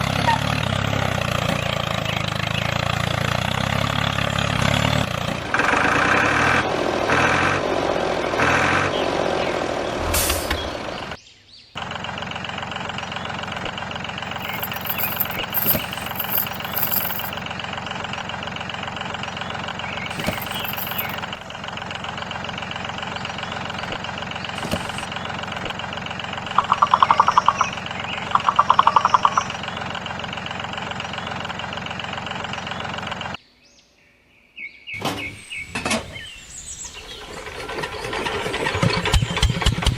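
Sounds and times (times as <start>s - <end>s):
short rattles: 14.3s - 17.4s, 20.1s - 21.3s.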